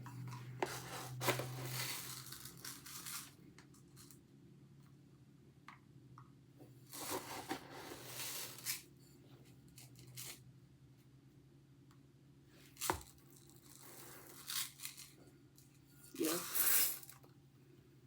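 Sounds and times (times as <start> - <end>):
rice pouring and rustling: 0.6 - 4.0, 6.9 - 8.9, 12.6 - 15.2, 16.0 - 17.2.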